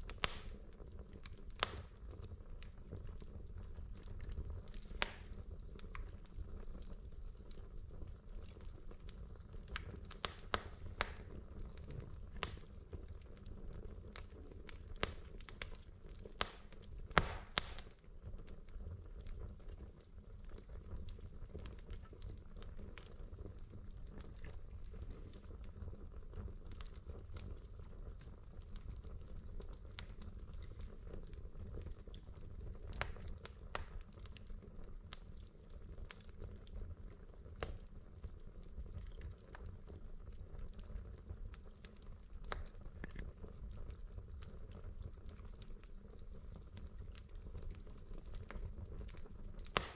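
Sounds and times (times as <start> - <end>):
burning logs popping: 0.0 - 49.9
low burning rumble: 0.0 - 49.9
wood fire crackling: 0.0 - 49.9
fire hissing flare: 17.2 - 17.9.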